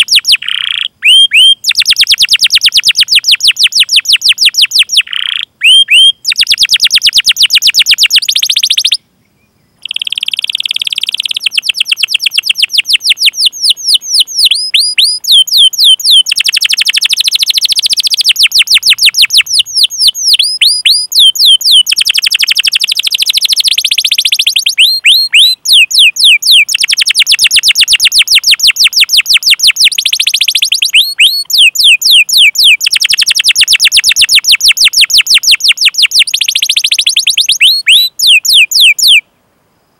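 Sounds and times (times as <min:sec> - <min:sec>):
canary singing: 0:00.0 - 0:39.2.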